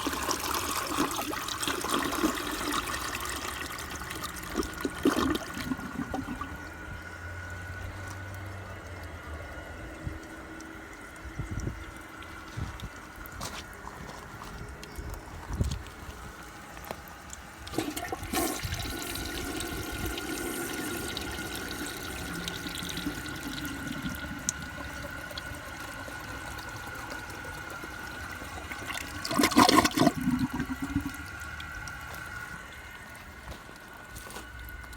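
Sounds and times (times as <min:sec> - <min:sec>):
loud water gurgle: 0:00.0 - 0:15.8, 0:16.4 - 0:34.8
toilet flushing water rush: 0:00.0 - 0:34.9
tank refilling hiss: 0:16.3 - 0:34.9.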